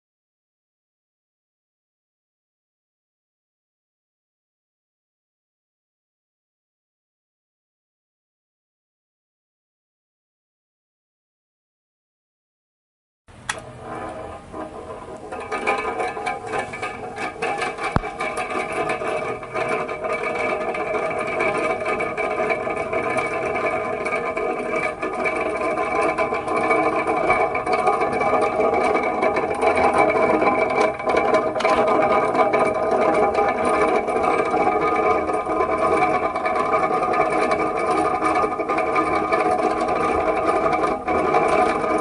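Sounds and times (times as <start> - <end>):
electric fan whirring hum: 13.3 - 42.0.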